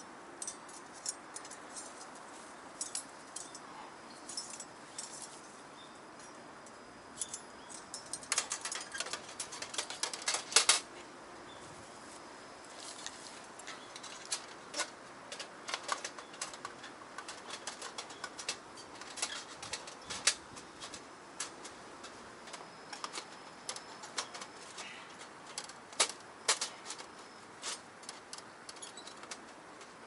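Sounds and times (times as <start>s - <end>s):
metal panels clicking and clattering: 7.2s - 10.9s, 13.7s - 30.0s.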